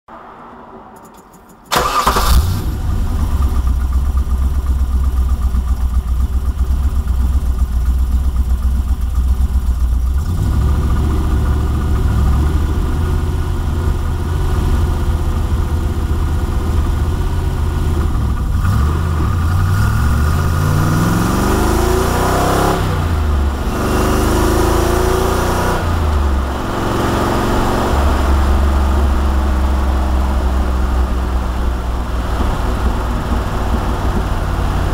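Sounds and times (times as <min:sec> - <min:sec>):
car engine starting and idling: 0:00.1 - 0:34.9
engine revving: 0:01.7 - 0:04.3, 0:10.1 - 0:34.9.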